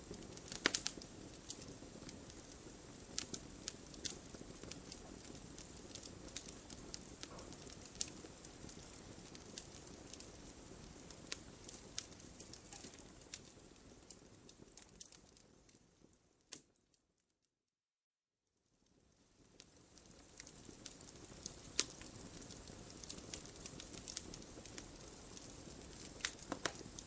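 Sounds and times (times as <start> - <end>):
wood fire crackling: 0.0 - 16.9, 18.8 - 27.0
sharp pops and snaps: 0.1 - 2.5, 11.3 - 13.6, 16.4 - 16.8, 20.4 - 27.0.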